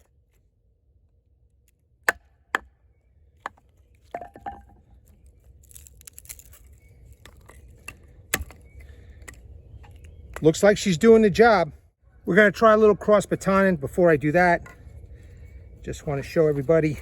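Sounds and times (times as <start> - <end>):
wood crackling: 3.4 - 10.7.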